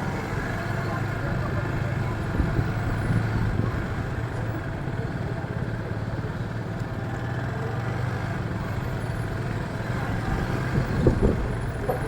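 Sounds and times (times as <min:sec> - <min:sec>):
city traffic noise: 0:00.0 - 0:12.0.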